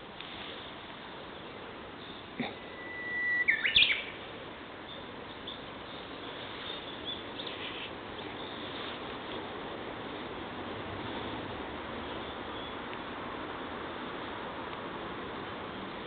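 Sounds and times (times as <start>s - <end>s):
bird whistling song: 2.0s - 4.2s
faint high bird chirps: 2.0s - 4.2s.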